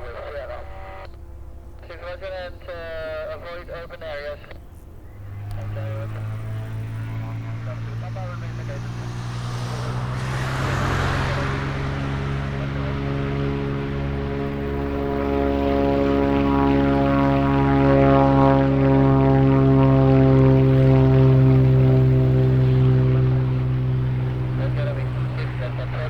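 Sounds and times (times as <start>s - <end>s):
propeller aircraft engine: 0.0s - 26.0s
rush of noise: 6.8s - 14.7s.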